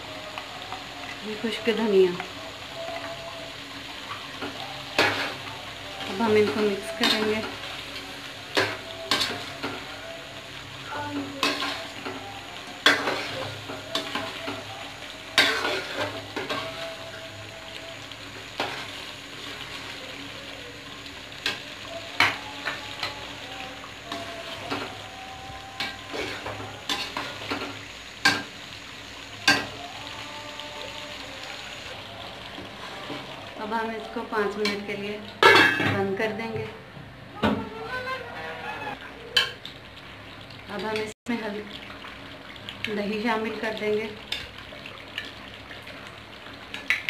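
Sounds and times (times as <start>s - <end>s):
food sizzling in hot oil: 0.0s - 47.0s
metal spoon scraping a pan: 12.8s - 14.6s, 15.4s - 16.8s, 25.8s - 28.5s.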